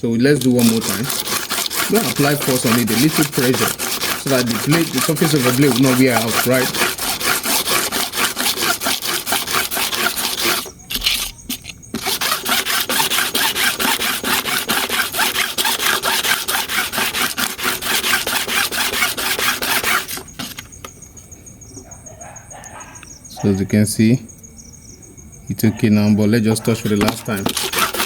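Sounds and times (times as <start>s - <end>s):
metal blade scraping on sandpaper: 0.3s - 20.7s, 26.6s - 28.0s.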